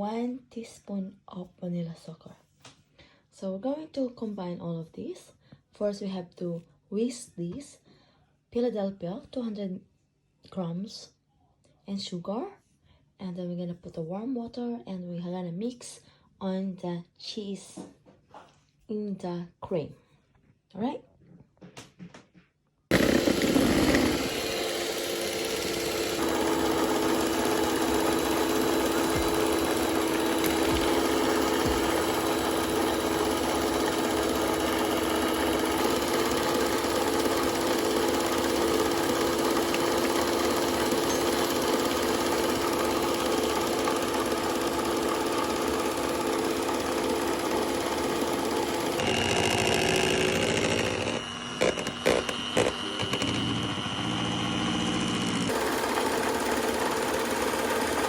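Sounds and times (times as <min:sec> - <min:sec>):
electric mixer running: 0:22.9 - 0:58.0.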